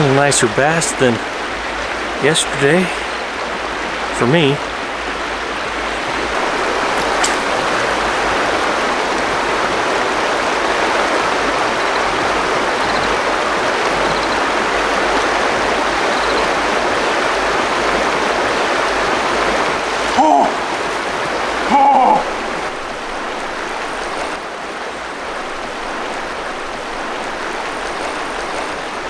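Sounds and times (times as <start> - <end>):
short click: 7.0 - 8.1.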